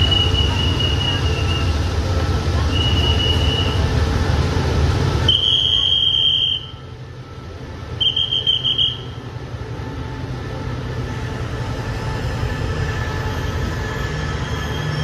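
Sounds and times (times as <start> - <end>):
diesel locomotive engine rumble: 0.0 - 15.0
high-pitched squeal: 11.4 - 15.0.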